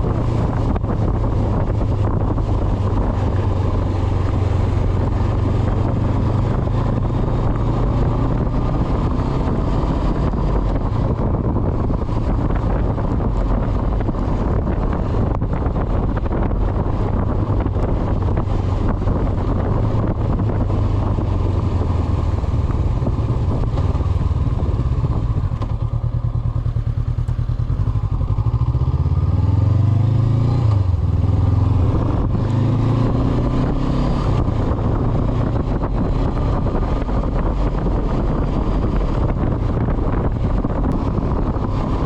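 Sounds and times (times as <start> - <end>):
motorcycle engine running: 0.0 - 42.0
wind on microphone: 0.0 - 42.0.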